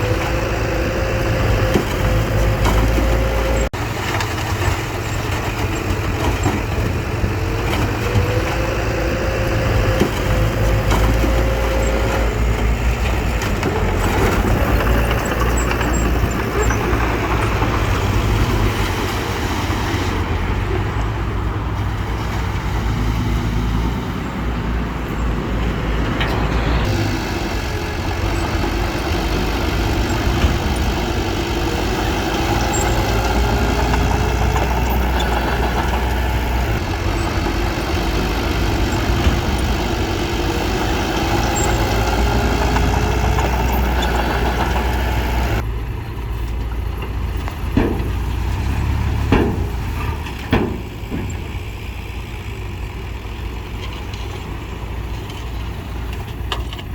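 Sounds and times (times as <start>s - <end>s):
heavy machinery diesel engine: 0.0s - 56.9s.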